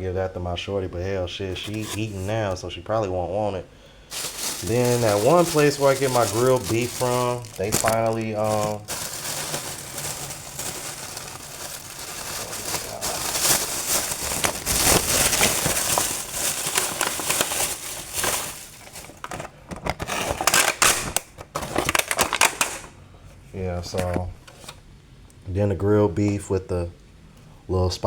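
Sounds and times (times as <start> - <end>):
food packaging crinkling: 1.5 - 2.6, 4.1 - 22.9.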